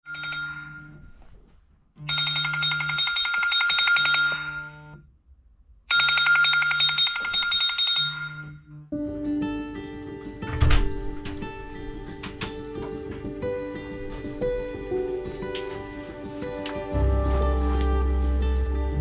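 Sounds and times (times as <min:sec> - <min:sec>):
telephone bell ringing: 0:00.0 - 0:01.1, 0:02.1 - 0:04.9, 0:05.9 - 0:08.6.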